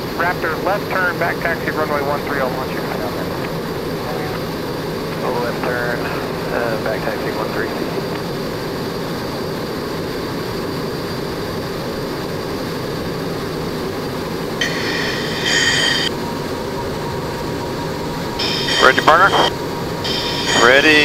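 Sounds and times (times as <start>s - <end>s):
jet engine rumble: 0.0s - 21.0s
high-pitched hiss: 14.6s - 16.1s, 18.4s - 21.0s.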